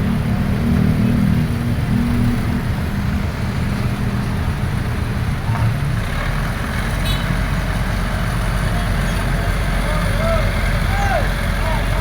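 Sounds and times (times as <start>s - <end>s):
excavator diesel engine running: 6.2s - 12.0s.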